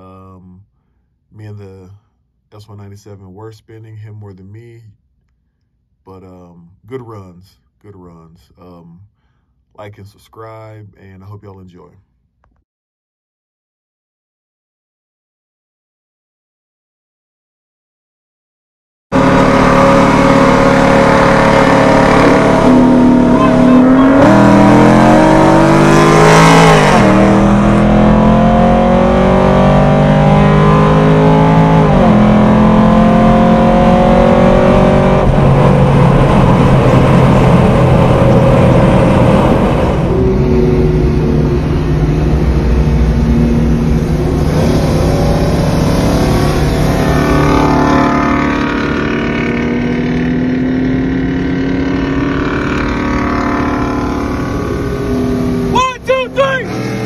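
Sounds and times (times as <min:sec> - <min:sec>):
car engine at full throttle: 0:19.1 - 0:57.0.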